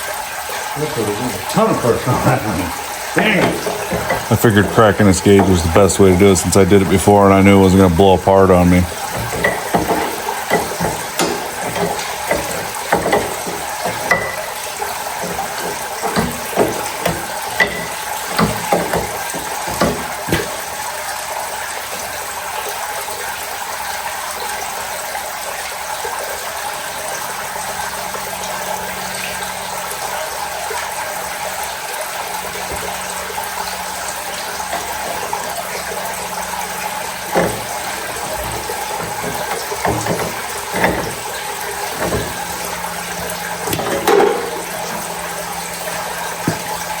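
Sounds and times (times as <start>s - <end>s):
water rushing from fitting: 0.0s - 47.0s
metal tool clanking: 3.2s - 20.8s, 34.6s - 35.5s, 37.1s - 45.4s, 46.3s - 46.8s.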